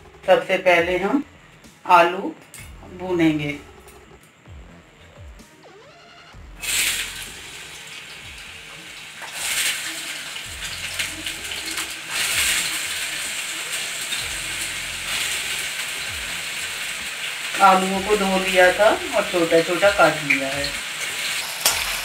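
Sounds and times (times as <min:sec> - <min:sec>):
potatoes sizzling in hot fat: 0:06.5 - 0:22.0.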